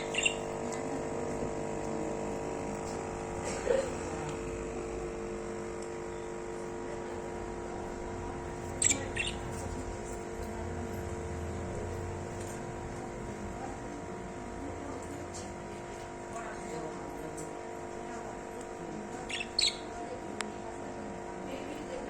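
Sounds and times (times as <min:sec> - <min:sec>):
lovebirds chirping: 0:00.0 - 0:00.8, 0:08.6 - 0:09.9, 0:19.2 - 0:20.2
steady hum: 0:00.0 - 0:22.0.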